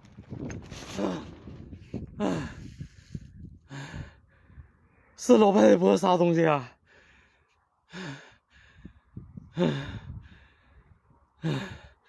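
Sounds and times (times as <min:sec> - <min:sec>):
man sighing: 0:02.1 - 0:02.9.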